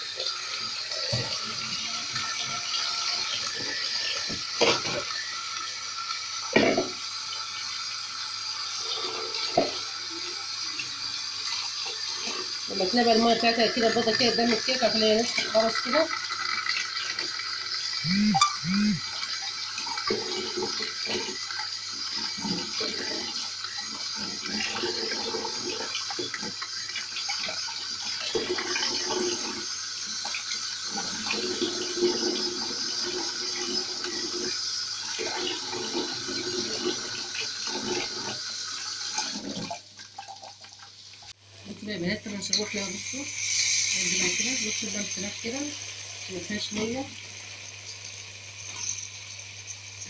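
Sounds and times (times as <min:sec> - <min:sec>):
tap running into sink: 0:00.9 - 0:02.5, 0:06.5 - 0:07.0, 0:09.4 - 0:09.9.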